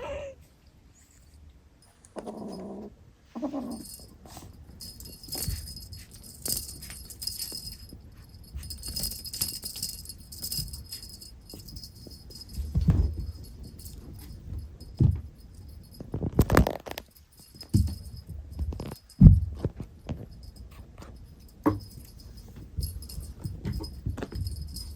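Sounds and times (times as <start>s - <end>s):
faint jingling: 1.8s - 24.9s
soft thumps and knocks: 10.5s - 16.5s, 17.5s - 24.9s.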